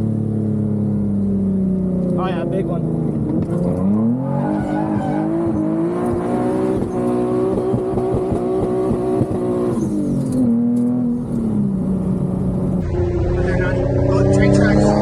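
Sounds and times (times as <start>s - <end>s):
car engine revving hard: 3.2s - 11.2s, 12.1s - 15.0s.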